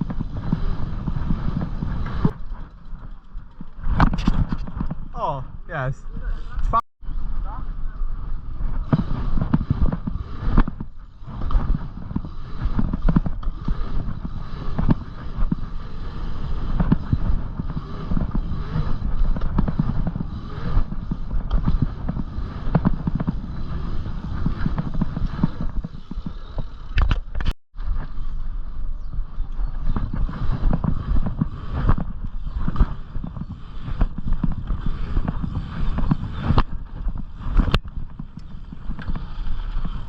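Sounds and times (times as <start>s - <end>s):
bicycle knocks and clatters: 0.0s - 5.2s
bicycle rumbling over rough ground: 0.0s - 40.0s.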